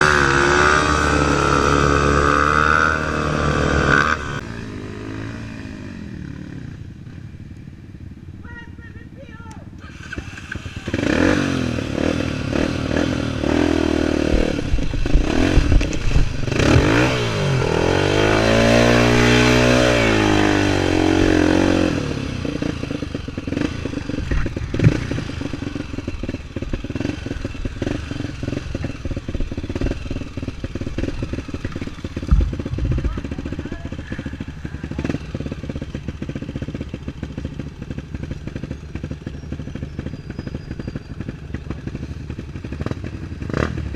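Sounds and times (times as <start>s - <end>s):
engine revving up and down: 0.0s - 5.8s, 10.0s - 37.4s, 42.7s - 43.9s
motorcycle engines running: 0.0s - 43.9s
clattering engine knocks: 30.9s - 34.2s.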